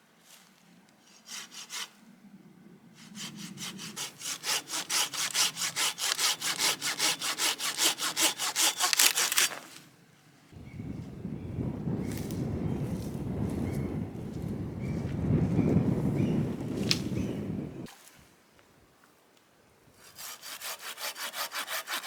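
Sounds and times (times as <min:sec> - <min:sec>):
hand saw cutting wood: 0:01.1 - 0:02.0, 0:03.0 - 0:09.8, 0:20.0 - 0:22.0.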